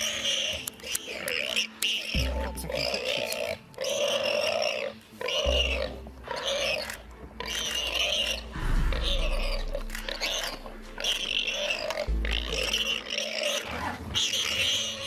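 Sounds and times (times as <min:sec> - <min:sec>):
loud animal cries: 0:00.0 - 0:15.0
low rumble: 0:08.4 - 0:13.1.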